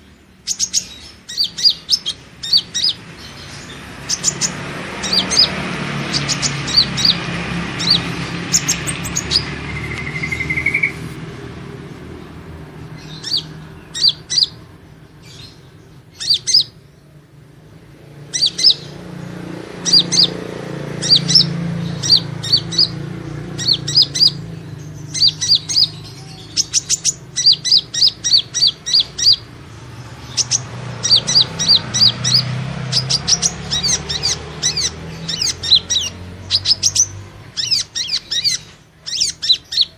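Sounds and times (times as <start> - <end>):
high sharp bird chirps: 0.0 - 11.3, 12.3 - 14.6, 15.2 - 17.1, 18.2 - 39.9.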